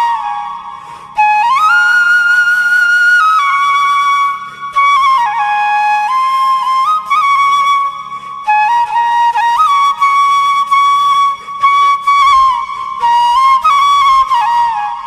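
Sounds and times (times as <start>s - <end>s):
solo flute melody: 0.0s - 15.0s.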